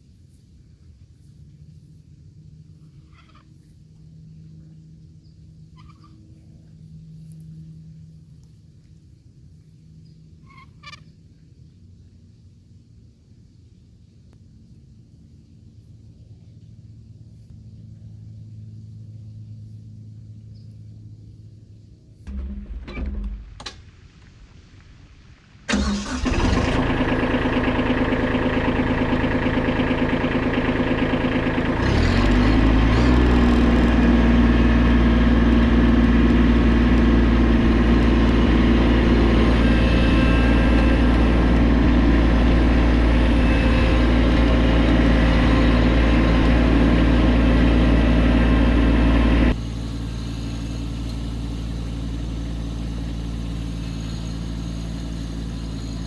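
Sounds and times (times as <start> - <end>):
tractor diesel engine running: 16.8 - 23.7, 25.4 - 56.0.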